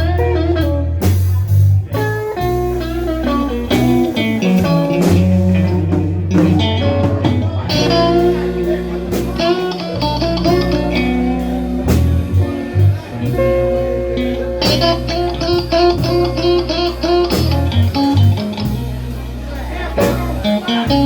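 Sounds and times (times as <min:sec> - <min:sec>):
blues band playing: 0:00.0 - 0:21.0
guitar lines: 0:00.0 - 0:21.0.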